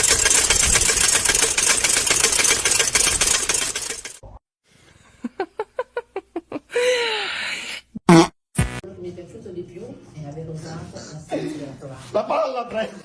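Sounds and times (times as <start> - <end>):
toy mechanical clicking rattle: 0.0 - 4.2.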